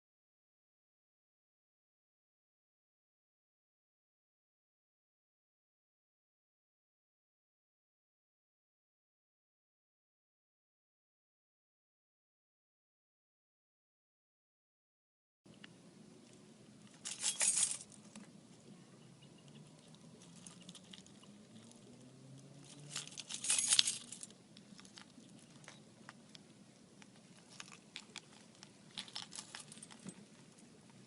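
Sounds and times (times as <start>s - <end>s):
faint background hum: 15.5s - 31.0s
light clinking and rattling: 16.2s - 18.7s, 19.4s - 26.4s, 27.0s - 31.0s.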